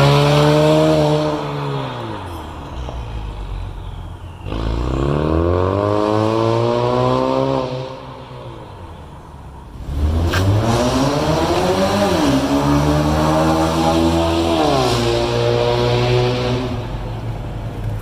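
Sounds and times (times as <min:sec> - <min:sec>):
car engine accelerating: 0:00.0 - 0:08.3, 0:09.7 - 0:18.0.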